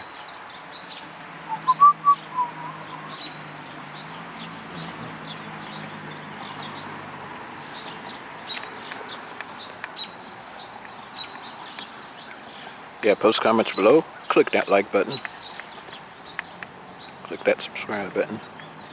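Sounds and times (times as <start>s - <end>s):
birds whistling: 0.0s - 6.9s, 7.6s - 12.8s, 15.1s - 17.2s
birds chirping: 0.0s - 18.9s.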